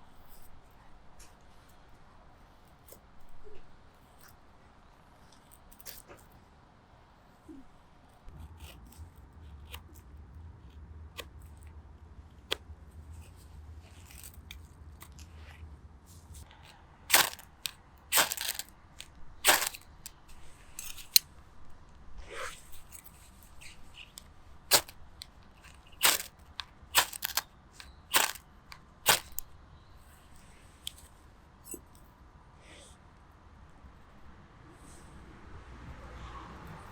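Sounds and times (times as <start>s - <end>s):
dry wood cracking in fire: 17.1s - 20.2s, 24.1s - 29.5s.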